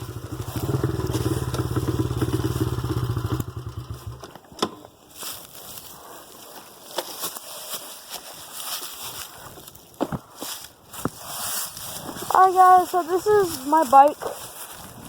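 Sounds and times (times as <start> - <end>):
dirt bike engine idling: 0.0 - 4.4.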